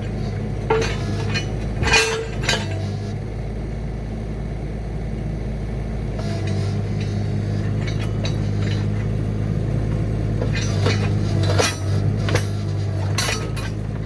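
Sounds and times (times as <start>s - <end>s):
sharp metal clanks: 0.0s - 3.1s, 6.2s - 14.0s
excavator engine running: 0.0s - 14.0s.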